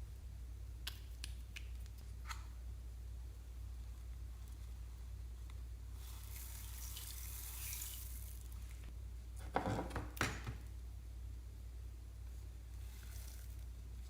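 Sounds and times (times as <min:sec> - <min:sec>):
slime hissing softly: 0:05.9 - 0:08.9.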